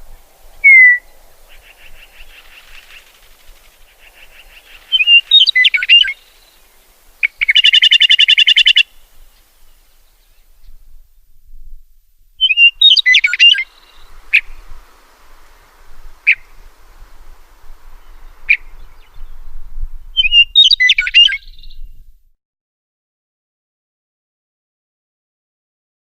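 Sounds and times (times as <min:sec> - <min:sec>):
songbird warbling: 0:00.0 - 0:10.8, 0:12.4 - 0:21.9
bird sharp call notes: 0:00.6 - 0:06.5, 0:07.2 - 0:08.9, 0:16.2 - 0:16.6.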